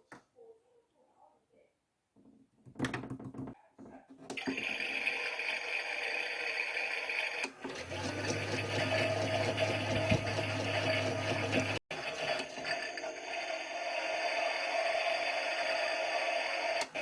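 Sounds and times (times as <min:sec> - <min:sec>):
small electric motor whirring: 0:04.5 - 0:17.0.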